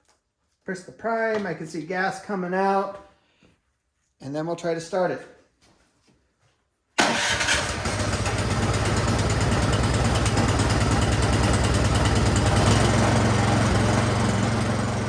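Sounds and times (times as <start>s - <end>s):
snowblower engine running: 7.0s - 15.0s.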